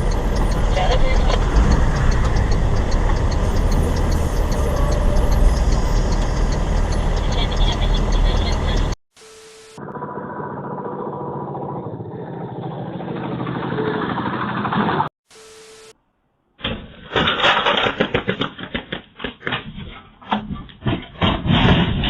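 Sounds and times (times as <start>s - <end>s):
vehicle engine running: 0.0s - 15.1s
knocks and rattles: 16.6s - 22.0s.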